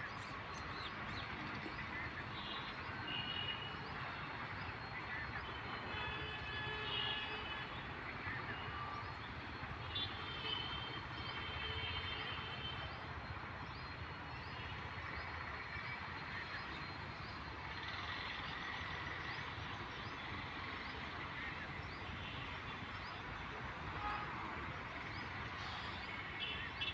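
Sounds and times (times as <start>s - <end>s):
rushing outdoor background noise: 0.0s - 26.9s.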